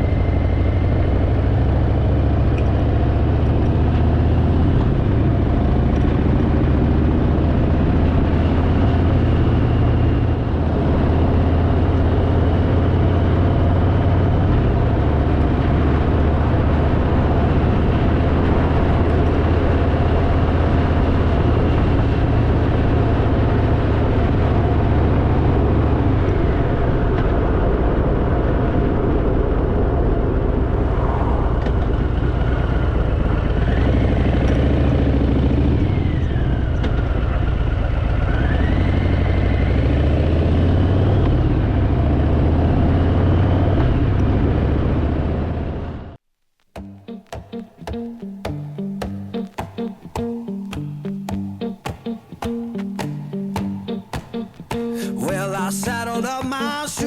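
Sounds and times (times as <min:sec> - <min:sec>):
motorcycle engine running: 0:00.0 - 0:30.8, 0:31.7 - 0:46.2
wind and road noise: 0:00.0 - 0:46.2, 0:47.0 - 0:57.0.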